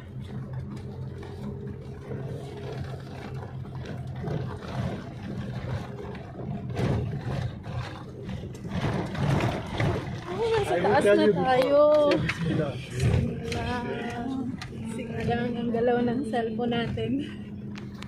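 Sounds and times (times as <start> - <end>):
vehicle engine running: 0.0 - 18.0
knocks and rattles from bumps: 2.2 - 10.8.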